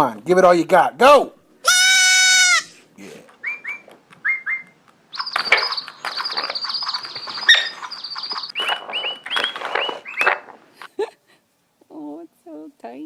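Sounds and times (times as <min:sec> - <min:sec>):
small bird chirping and trilling: 0:03.4 - 0:10.4.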